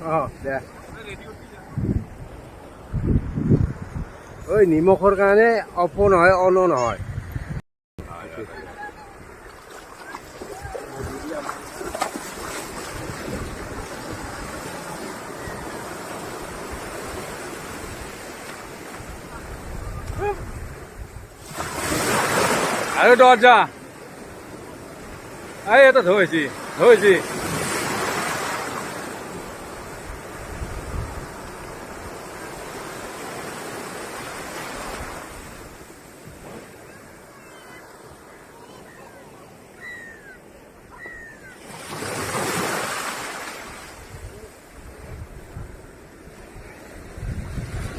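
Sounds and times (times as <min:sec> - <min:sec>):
wind rumbling on microphone: 0:00.0 - 0:05.2, 0:05.8 - 0:22.6, 0:29.2 - 0:32.6, 0:43.9 - 0:47.9
sea surf rushing on shore: 0:00.0 - 0:06.8, 0:08.0 - 0:47.9
waves breaking on beach: 0:00.0 - 0:06.8, 0:08.0 - 0:47.9.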